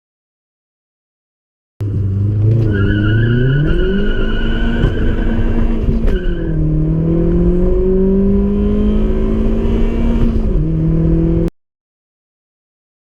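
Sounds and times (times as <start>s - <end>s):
car engine accelerating: 1.8s - 11.5s.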